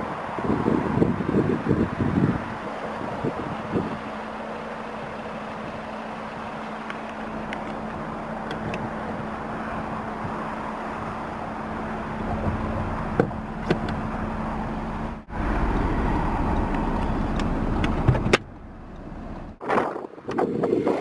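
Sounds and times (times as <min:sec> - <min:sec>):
car engine idling: 0:00.0 - 0:19.6.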